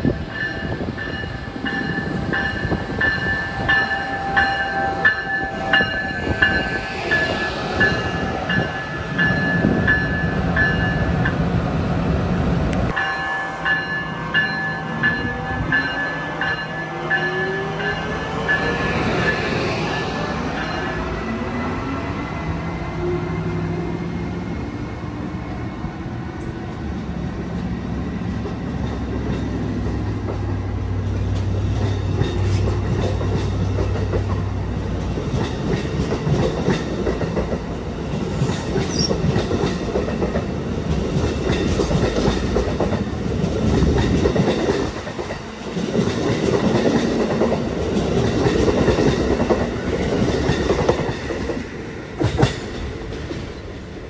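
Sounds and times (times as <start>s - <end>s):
train wheels clacking on rails: 28.2s - 53.9s.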